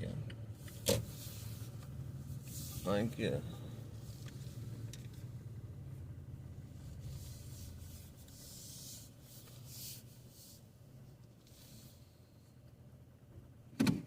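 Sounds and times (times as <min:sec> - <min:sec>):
truck engine idling: 0:00.0 - 0:13.6
short rustling hissing sounds: 0:00.6 - 0:03.1, 0:06.7 - 0:10.8, 0:11.4 - 0:12.1.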